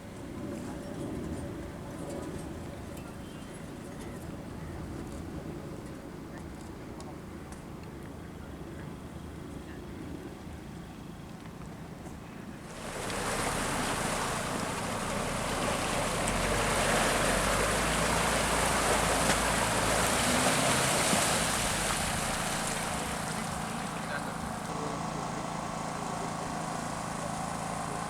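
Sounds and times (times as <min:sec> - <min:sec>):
car engine running: 0:12.7 - 0:28.0.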